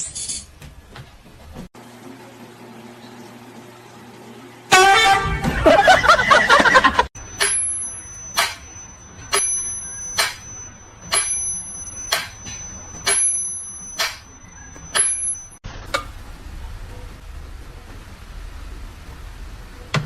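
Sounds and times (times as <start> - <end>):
faint high steady tone: 7.2 - 15.6.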